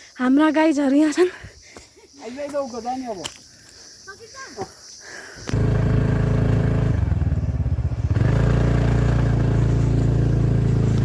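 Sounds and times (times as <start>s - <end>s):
motorcycle engine running: 5.5s - 11.0s.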